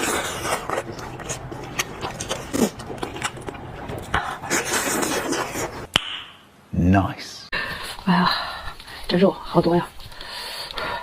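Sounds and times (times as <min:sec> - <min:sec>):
wet chewing: 0:00.0 - 0:05.9
person breathing: 0:07.5 - 0:09.1, 0:10.0 - 0:11.0.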